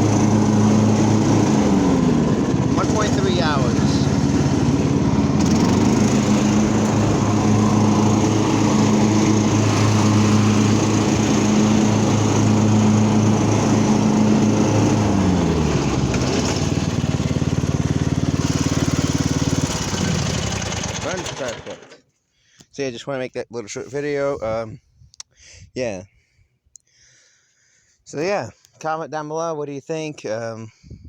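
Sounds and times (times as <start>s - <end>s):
lawn tractor engine running: 0.0s - 22.0s.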